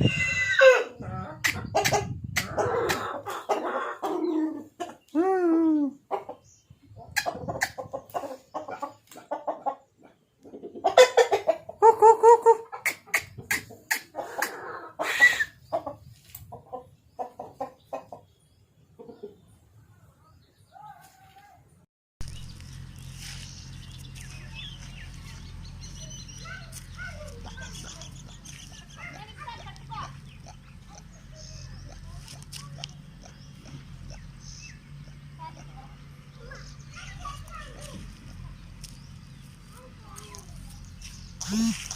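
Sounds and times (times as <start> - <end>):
chickens clucking: 0.0 - 5.2, 5.9 - 19.7, 24.1 - 41.9
birds chirping: 12.7 - 41.9.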